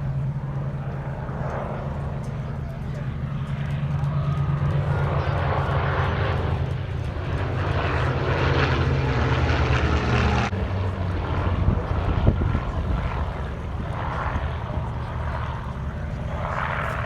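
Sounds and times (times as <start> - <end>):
propeller aircraft engine drone: 0.0 - 17.0.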